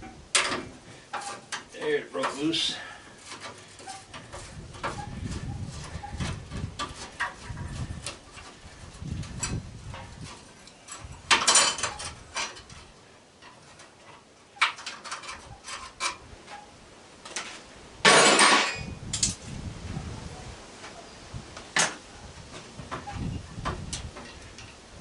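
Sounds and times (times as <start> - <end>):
rough metal clatter: 0.3 - 19.4
metal tools clinking: 10.6 - 12.8.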